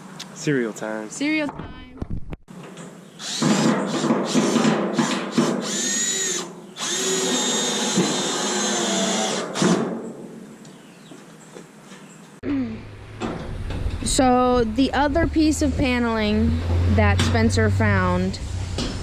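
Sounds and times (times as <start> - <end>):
cordless drill whine: 5.6 - 9.7.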